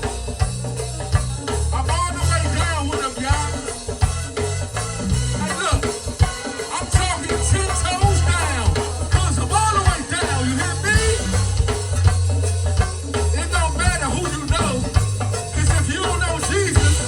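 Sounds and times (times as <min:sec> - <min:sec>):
drums and percussion: 0:00.0 - 0:17.0
gospel band playing: 0:00.0 - 0:17.0
heavy bass line: 0:00.0 - 0:17.0
sliding melody line: 0:01.7 - 0:17.0.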